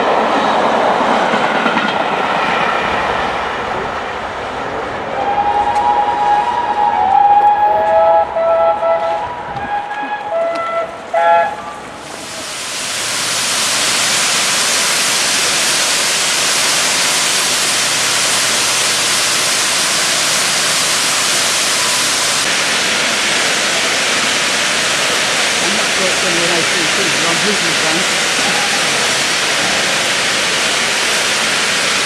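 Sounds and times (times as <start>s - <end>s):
steam locomotive whistle blasts: 5.2s - 12.6s
hiss of escaping steam: 12.0s - 22.5s.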